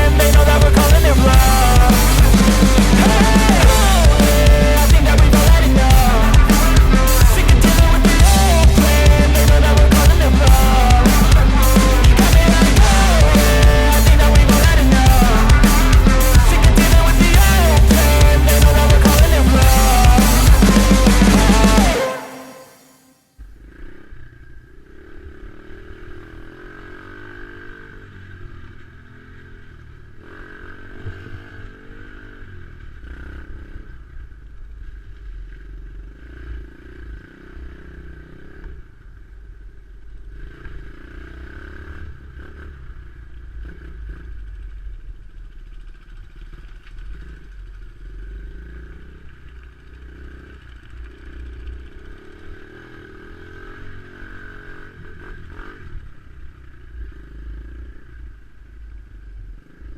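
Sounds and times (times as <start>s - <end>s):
dirt bike engine revving: 0.0s - 23.1s.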